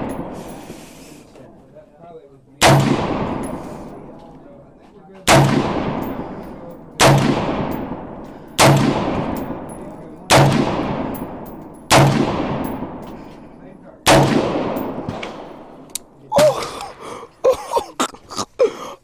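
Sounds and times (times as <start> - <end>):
gunshots with echoing decay: 0.0 - 0.8, 2.6 - 4.5, 5.2 - 17.1.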